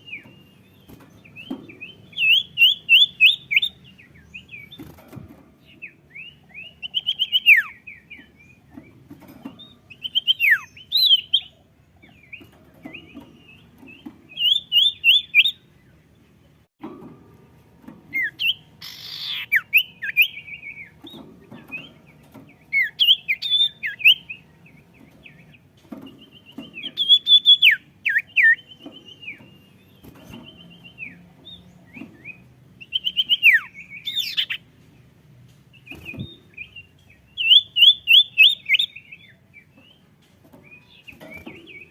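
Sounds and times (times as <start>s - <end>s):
songbird singing: 0.0s - 41.9s
answering bird calls: 18.2s - 20.4s.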